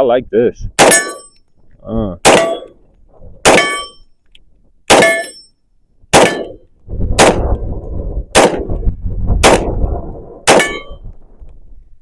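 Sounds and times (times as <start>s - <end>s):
pistol shots: 0.8s - 1.3s, 2.2s - 2.8s, 3.4s - 4.0s, 4.9s - 5.4s, 6.1s - 6.6s, 7.2s - 7.6s, 8.3s - 8.7s, 9.4s - 9.8s, 10.4s - 11.0s
steel target plate clanging: 0.8s - 1.4s, 3.5s - 4.1s, 5.0s - 5.6s, 10.5s - 11.1s
low rumbling noise: 6.5s - 12.0s.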